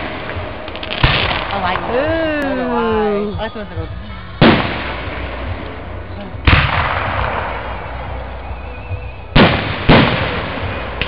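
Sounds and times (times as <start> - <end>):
firework shells booming: 0.0 - 2.8, 4.4 - 8.4, 9.3 - 11.0.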